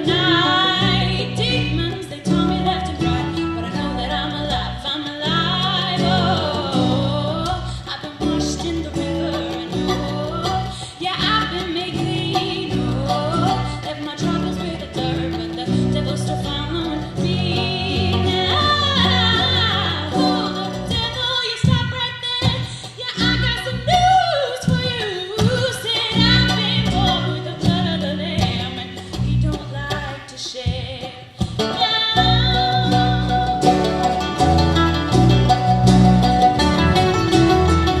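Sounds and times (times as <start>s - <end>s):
singing with harmony voices: 0.0s - 21.6s
acoustic string accompaniment: 0.0s - 38.0s.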